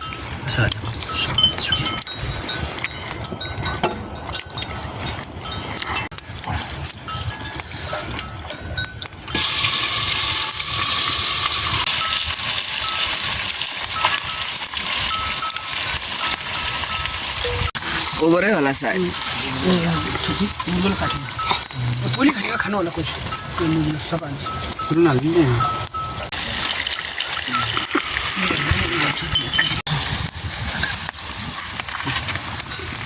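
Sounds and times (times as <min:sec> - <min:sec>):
livestock bells clinking: 0:00.0 - 0:06.1, 0:07.0 - 0:10.4, 0:11.4 - 0:27.8
food sizzling in hot oil: 0:07.9 - 0:33.0.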